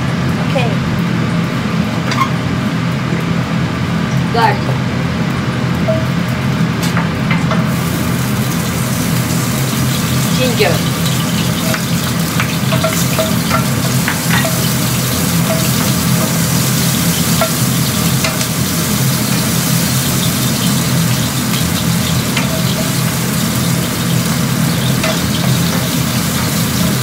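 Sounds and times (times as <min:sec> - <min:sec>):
garlic sizzling in hot oil: 0:07.5 - 0:27.0.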